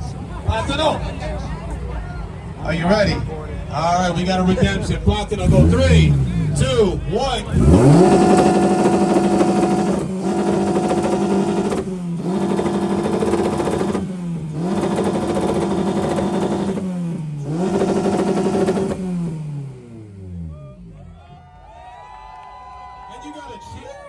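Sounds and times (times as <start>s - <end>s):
car engine revving hard: 5.3s - 21.0s.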